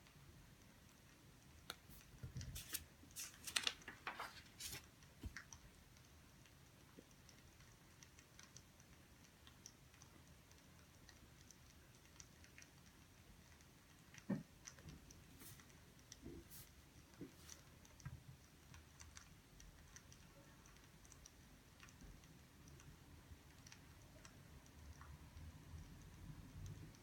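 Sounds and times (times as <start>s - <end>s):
sharp clicks and rustles: 1.5s - 22.0s.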